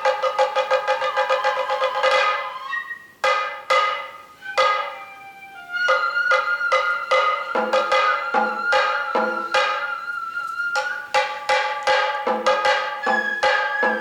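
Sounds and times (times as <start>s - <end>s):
held high flute note: 0.0s - 14.0s
ringing drum strokes: 3.2s - 5.2s, 5.9s - 14.0s.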